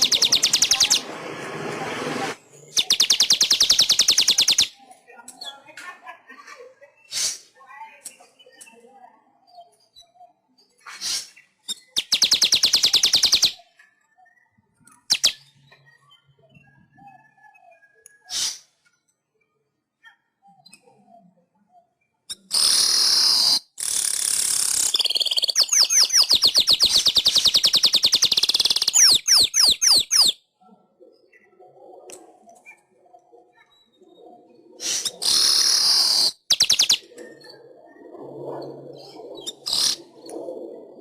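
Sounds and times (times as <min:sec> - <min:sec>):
weaver bird singing: 0:00.0 - 0:01.1, 0:02.5 - 0:04.8, 0:11.0 - 0:17.4, 0:22.3 - 0:30.4, 0:34.8 - 0:37.5.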